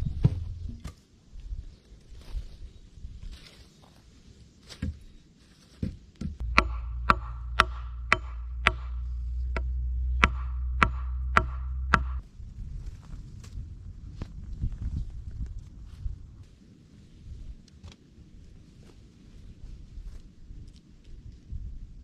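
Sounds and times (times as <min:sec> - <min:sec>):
tool striking wood: 0:05.8 - 0:12.2
steady low hum: 0:06.3 - 0:16.4.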